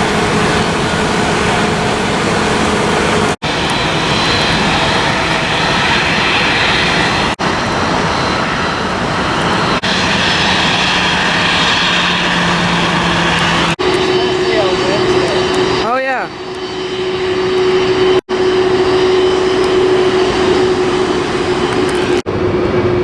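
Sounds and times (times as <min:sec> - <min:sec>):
airliner engines running: 0:00.0 - 0:23.0.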